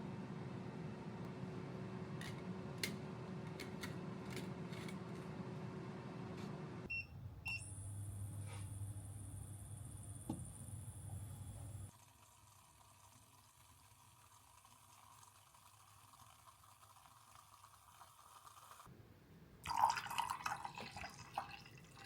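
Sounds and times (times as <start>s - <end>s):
lower hum with high whine: 0.0s - 11.9s
electrical hum: 0.0s - 12.8s.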